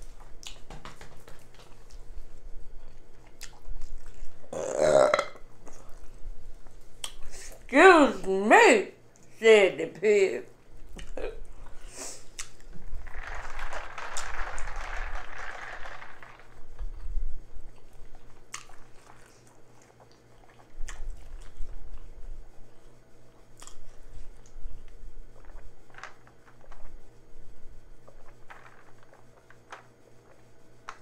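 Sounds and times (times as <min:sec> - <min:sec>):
chewing and wet mouth clicks: 0:00.4 - 0:00.6, 0:02.9 - 0:04.2, 0:07.0 - 0:07.3, 0:12.3 - 0:12.7, 0:17.8 - 0:22.1, 0:23.6 - 0:24.6.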